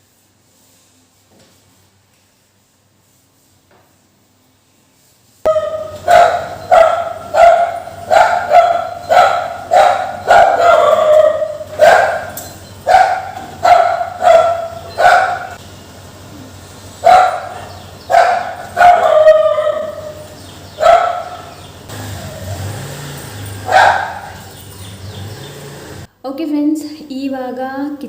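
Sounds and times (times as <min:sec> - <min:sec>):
dog barking: 0:05.5 - 0:15.6, 0:17.0 - 0:21.6, 0:23.6 - 0:24.6.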